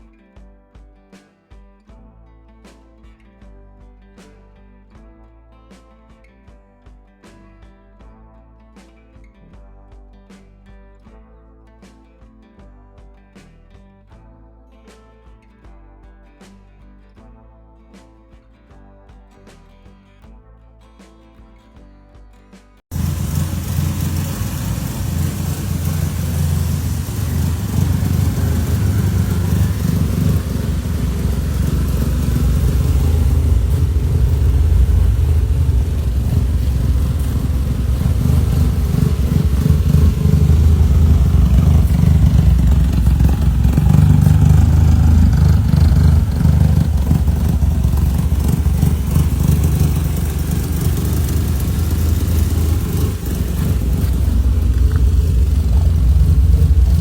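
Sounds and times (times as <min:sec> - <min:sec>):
car engine running loudly: 0:22.9 - 0:57.0.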